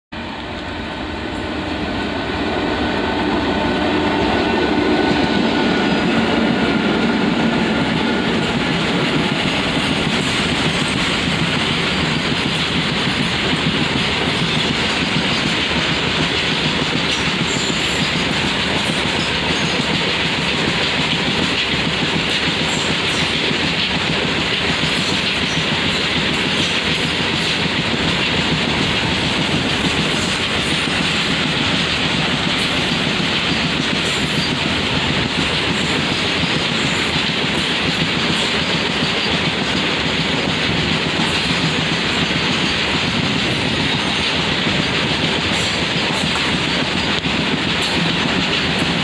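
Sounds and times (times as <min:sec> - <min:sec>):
electric locomotives humming: 0:00.2 - 0:21.3
train wheels clattering on rails: 0:03.2 - 0:49.0.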